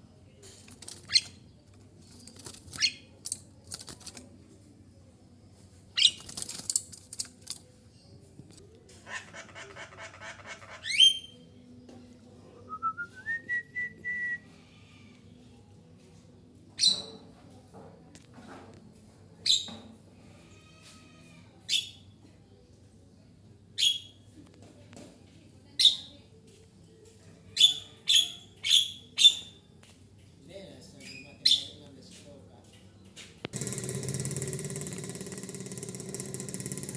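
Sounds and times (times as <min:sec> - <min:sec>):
harsh buzzy bird chattering: 0:09.1 - 0:11.2.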